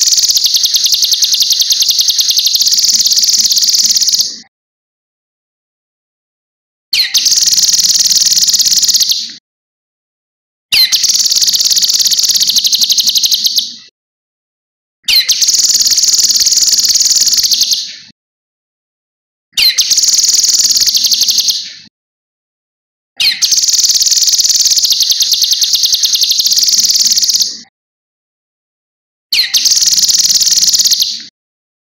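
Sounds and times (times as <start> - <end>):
bird singing rapid trills: 0.0 - 4.4, 7.0 - 9.3, 10.8 - 13.8, 15.1 - 17.9, 19.6 - 21.6, 23.2 - 27.6, 29.4 - 31.3.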